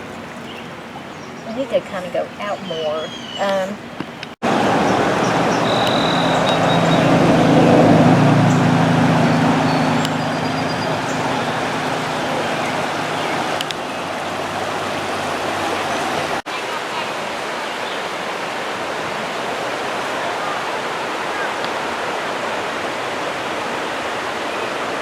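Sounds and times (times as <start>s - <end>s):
river water rushing: 3.2s - 25.0s
engine humming: 3.4s - 16.4s.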